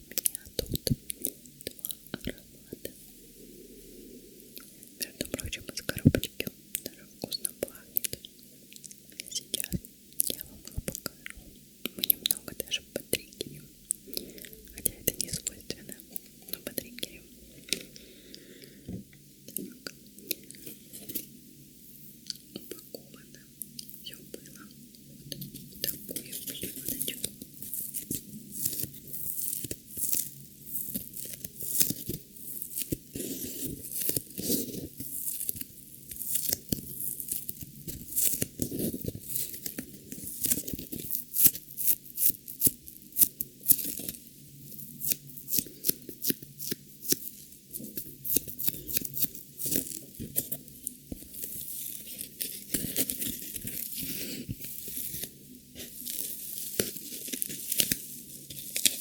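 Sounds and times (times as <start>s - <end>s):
packaging tearing and crinkling: 44.8s - 59.0s.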